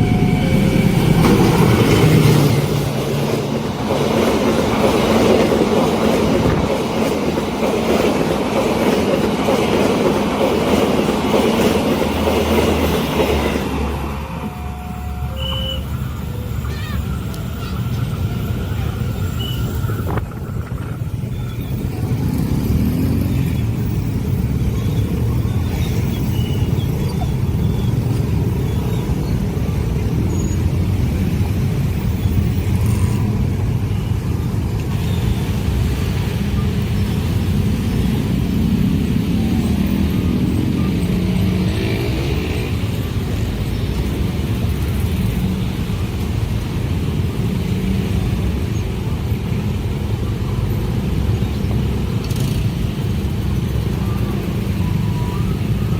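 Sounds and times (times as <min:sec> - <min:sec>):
train rumbling past: 0:00.0 - 0:55.9.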